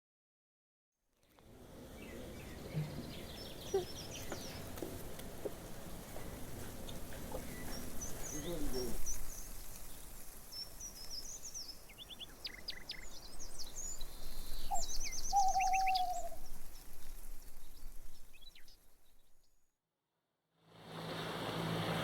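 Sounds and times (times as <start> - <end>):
steady outdoor hiss: 1.2 - 19.5, 20.7 - 22.0
birds chirping: 1.6 - 19.6
falling bird whistle: 14.6 - 16.4.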